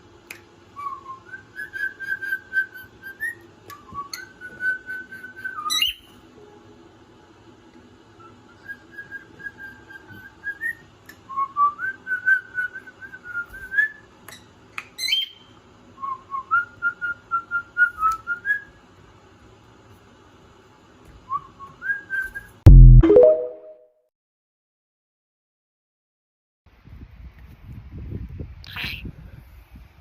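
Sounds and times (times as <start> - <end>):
pet bird whistling: 0.8 - 6.1, 15.0 - 18.7.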